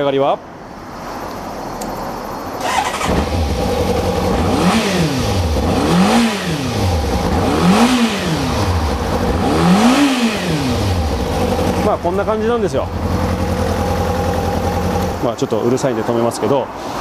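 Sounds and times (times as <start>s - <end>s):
motorcycle engine throttle blips: 2.6s - 15.2s.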